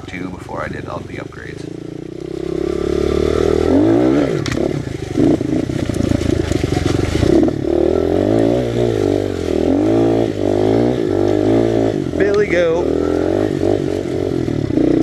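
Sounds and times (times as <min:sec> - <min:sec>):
motorbike engine revving: 0:00.0 - 0:15.0.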